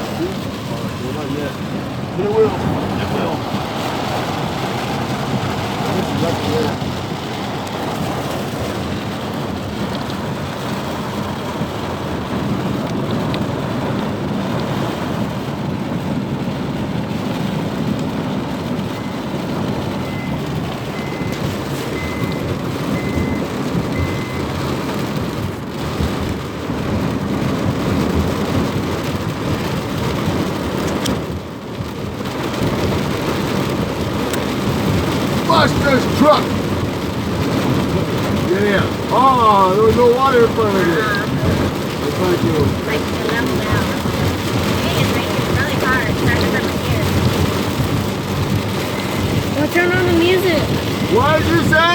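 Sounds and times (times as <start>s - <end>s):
heavy rain pouring: 0.0s - 51.9s
vehicles on wet road: 0.0s - 51.9s
faint short beeps: 21.0s - 22.4s.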